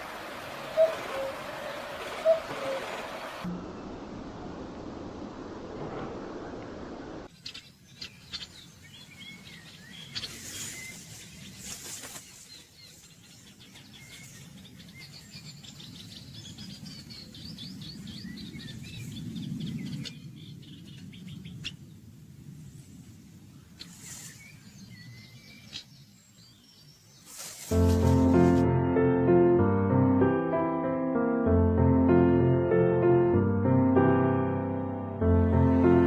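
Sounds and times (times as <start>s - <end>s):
low forest rumble: 0.0s - 7.4s, 27.8s - 36.0s
birds chirping and calling: 0.6s - 3.4s, 7.3s - 21.9s, 23.6s - 27.6s.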